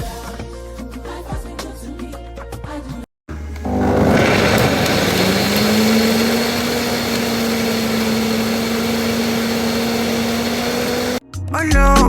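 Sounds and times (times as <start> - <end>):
electric blender motor whirring: 3.3 - 11.2.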